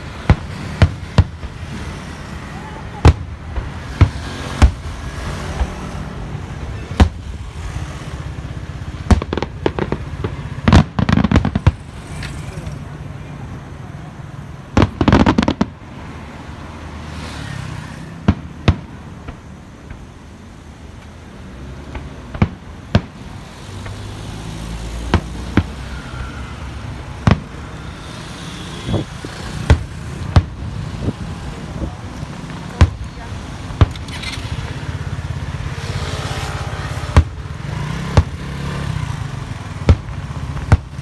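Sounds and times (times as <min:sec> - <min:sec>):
fireworks bangs: 0:00.0 - 0:20.6, 0:21.4 - 0:41.0
fireworks crackling: 0:00.0 - 0:41.0.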